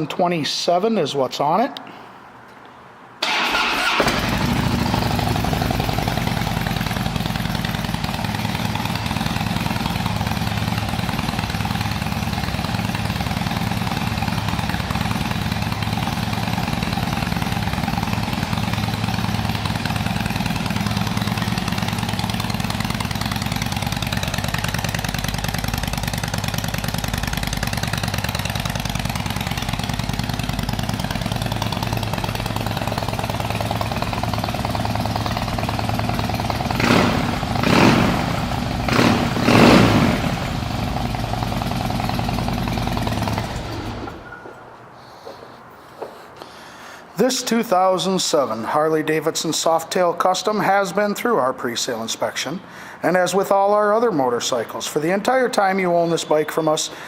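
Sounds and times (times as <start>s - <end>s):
motorcycle engine starting and idling: 3.2s - 44.8s.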